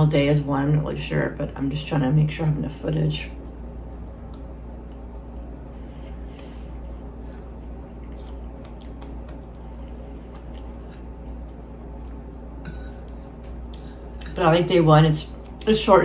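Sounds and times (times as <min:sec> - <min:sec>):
steady low hum: 0:00.0 - 0:16.0
quiet chewing: 0:03.4 - 0:14.4.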